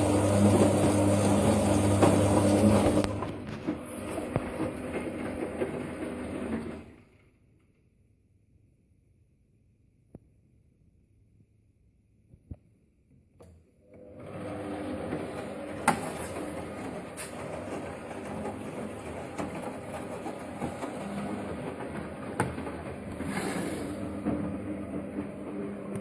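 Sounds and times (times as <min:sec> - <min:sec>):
washing machine running: 0:00.0 - 0:07.4, 0:13.8 - 0:26.0.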